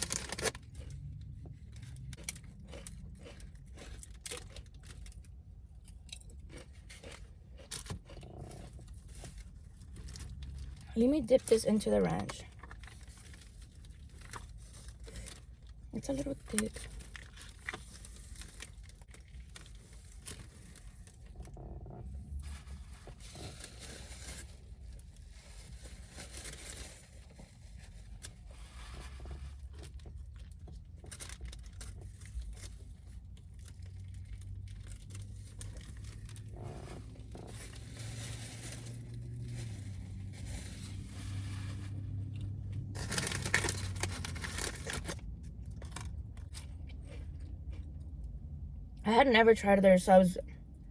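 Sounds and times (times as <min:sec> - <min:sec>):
chewing: 0:00.1 - 0:10.8, 0:42.4 - 0:48.4
paper wrapping crinkling: 0:22.4 - 0:46.6.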